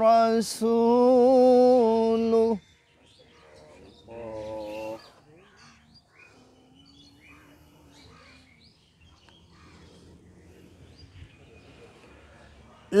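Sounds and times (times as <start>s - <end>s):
faint distant voice: 3.2s - 13.0s.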